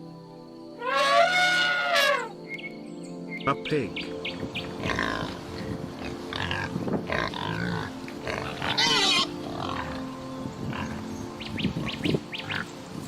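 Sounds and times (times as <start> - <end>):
pig squealing: 0.8 - 2.3, 6.3 - 10.0.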